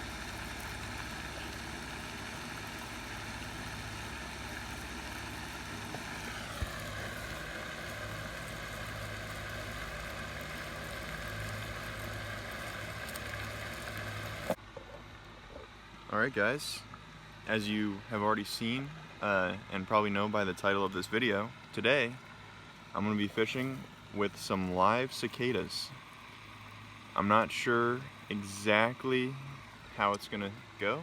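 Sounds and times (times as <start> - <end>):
engine running: 0.0 - 31.0.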